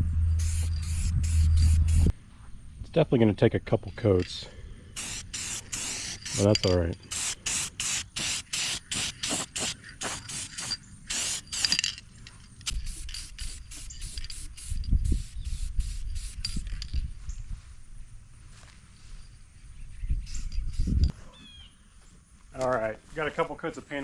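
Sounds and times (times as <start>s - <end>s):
low rumble: 0.0s - 3.0s
spray paint can hissing: 0.4s - 2.1s, 5.0s - 12.0s, 12.6s - 16.8s.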